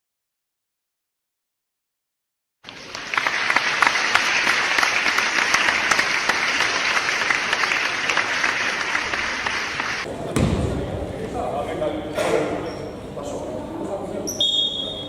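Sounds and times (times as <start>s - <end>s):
crowd applauding: 2.6s - 10.1s.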